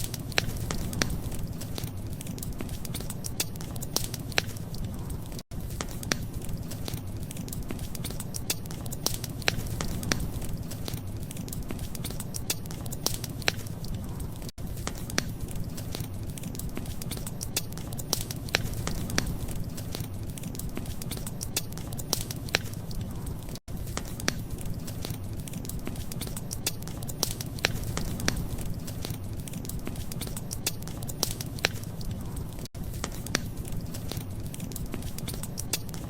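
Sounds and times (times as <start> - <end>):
wood fire crackling: 0.0 - 36.0.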